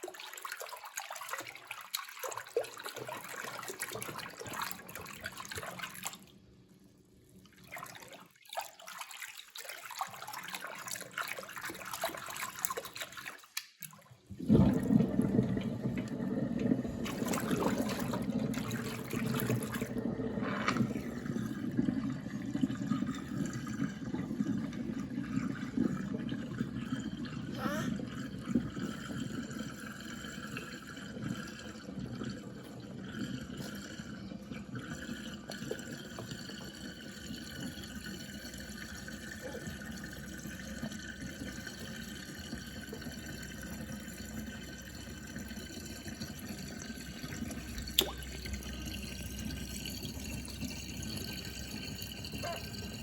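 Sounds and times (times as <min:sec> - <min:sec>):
water gurgling down a drain: 0:00.0 - 0:06.5, 0:07.4 - 0:53.0
water dripping: 0:07.4 - 0:27.4, 0:33.5 - 0:53.0.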